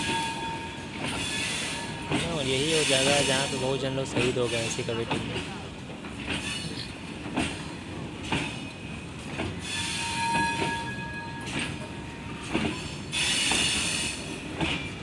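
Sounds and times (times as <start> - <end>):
train rumble: 0.0 - 15.0
train wheels knocking on rail joints: 0.0 - 15.0
wheel squeal with hiss: 1.1 - 2.0, 2.6 - 3.6, 6.4 - 6.9, 9.6 - 11.1, 12.8 - 14.4.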